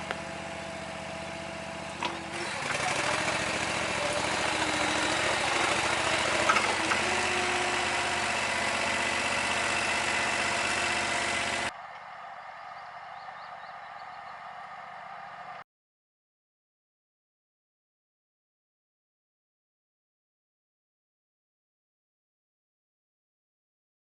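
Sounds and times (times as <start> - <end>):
small petrol engine running: 0.0 - 11.7.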